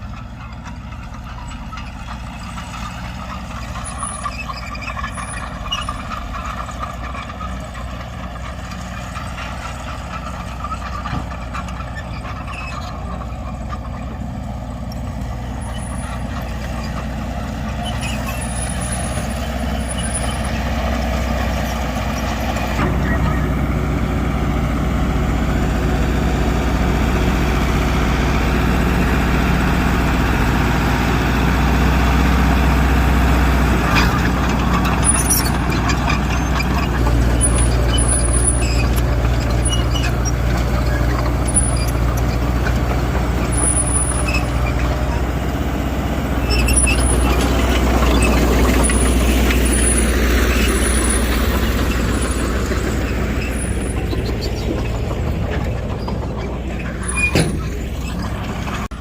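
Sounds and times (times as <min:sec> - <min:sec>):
diesel earthmoving machinery: 0:00.0 - 0:59.0
high-pitched squeaks and clinks: 0:34.0 - 0:42.8, 0:43.4 - 0:45.2, 0:46.4 - 0:58.9.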